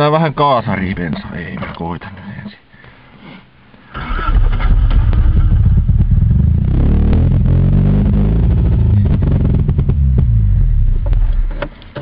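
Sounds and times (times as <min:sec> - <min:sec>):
starter motor cranking engine: 0:04.0 - 0:06.6.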